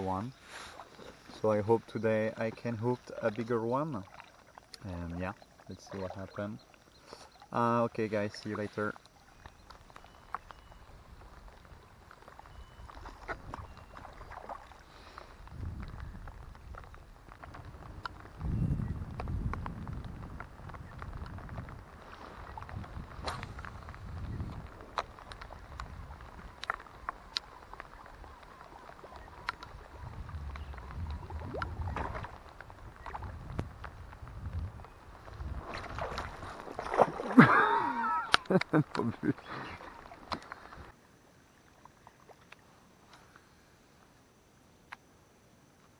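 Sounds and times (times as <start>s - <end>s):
water lapping: 0.0s - 15.5s, 35.5s - 40.9s
wind on microphone: 9.4s - 38.3s
light ticks: 29.2s - 29.8s.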